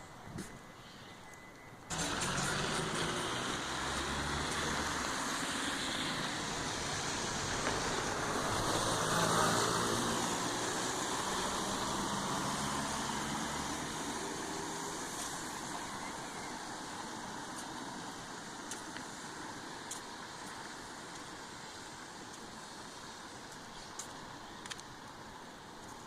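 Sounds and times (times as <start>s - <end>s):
road noise: 0.0s - 26.0s
vehicle engine running: 1.9s - 5.3s.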